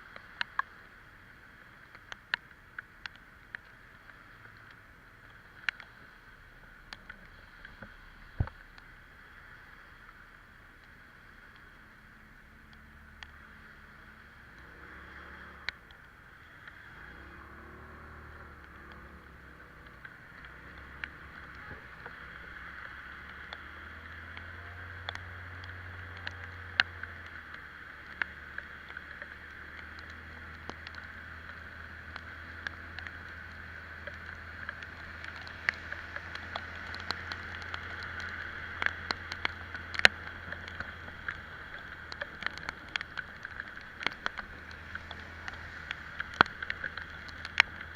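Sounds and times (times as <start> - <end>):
hiss of water on wet road: 0.0 - 47.9
sharp ticks: 18.5 - 47.9.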